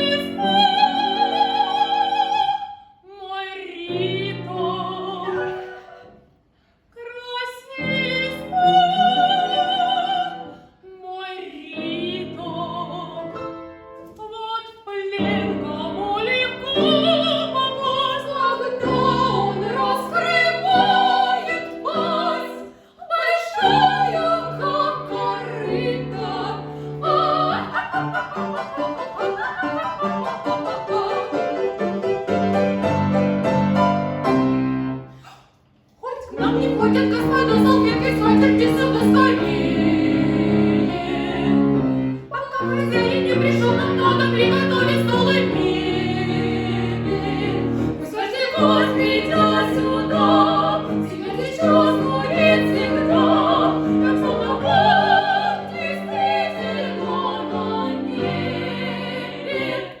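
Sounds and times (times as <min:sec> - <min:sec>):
woman singing operetta: 0:00.0 - 0:06.2, 0:07.0 - 0:13.5, 0:14.2 - 0:31.7, 0:36.0 - 0:41.6, 0:42.2 - 1:00.0
instrumental accompaniment: 0:24.0 - 0:35.2.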